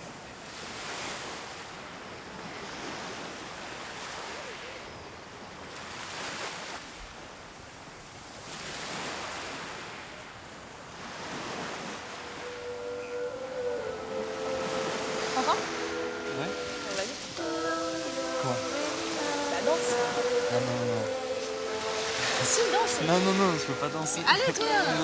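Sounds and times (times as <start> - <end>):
sea waves breaking: 10.7 - 25.0.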